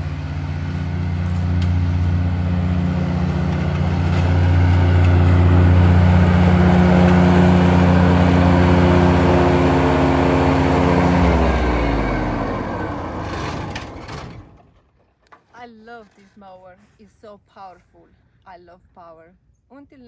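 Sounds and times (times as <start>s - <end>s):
riding lawn mower engine: 0.0s - 15.4s.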